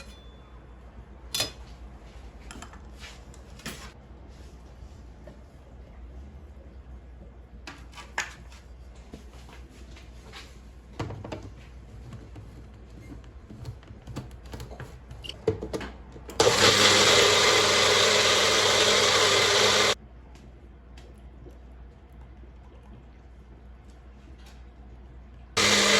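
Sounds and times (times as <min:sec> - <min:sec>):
electric blender running: 0:16.4 - 0:20.0, 0:25.6 - 0:25.9.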